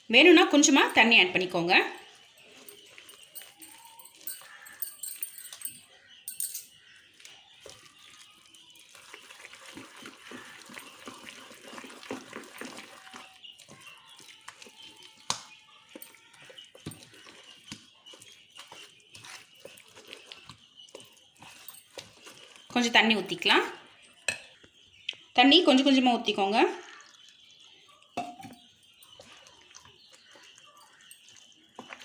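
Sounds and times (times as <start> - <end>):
spoon stirring wet batter: 0.0 - 32.0
spoon knocking on bowl: 28.2 - 28.6.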